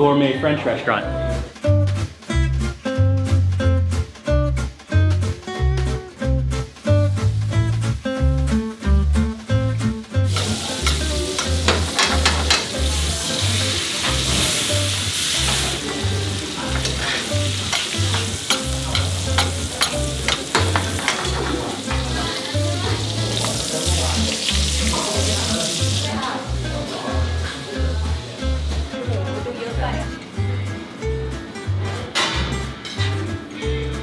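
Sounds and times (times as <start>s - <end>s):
background music bass line: 0.0s - 34.0s
food sizzling in skillets: 5.1s - 29.8s
spatula working in pan: 10.3s - 23.8s.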